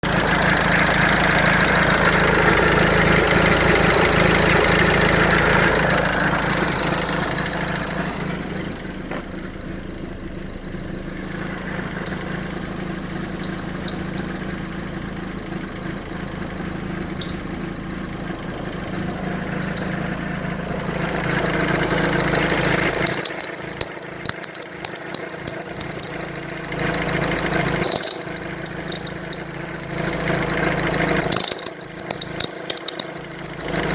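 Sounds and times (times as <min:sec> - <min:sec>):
car engine idling: 0:00.0 - 0:33.9
belt squeaking: 0:10.7 - 0:14.6, 0:16.6 - 0:17.7, 0:18.7 - 0:20.2, 0:22.7 - 0:26.3, 0:27.7 - 0:29.5, 0:31.2 - 0:33.2.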